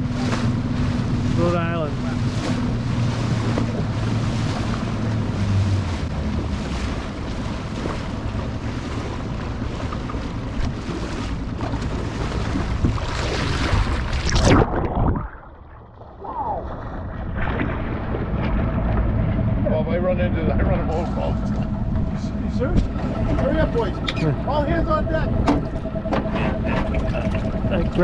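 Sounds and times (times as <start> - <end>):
wind buffeting microphone: 0.0 - 15.5, 16.1 - 28.0
boat motor humming: 0.0 - 28.0
water washing around hull: 0.0 - 28.0.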